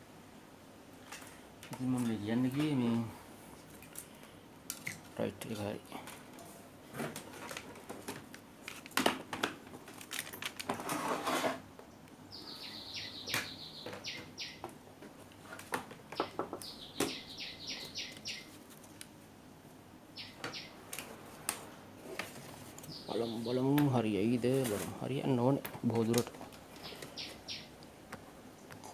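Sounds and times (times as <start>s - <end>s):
small tools clattering: 6.0s - 11.6s
bird chirping: 11.9s - 14.7s, 16.1s - 18.6s, 20.1s - 20.9s, 22.8s - 24.4s, 25.9s - 27.8s.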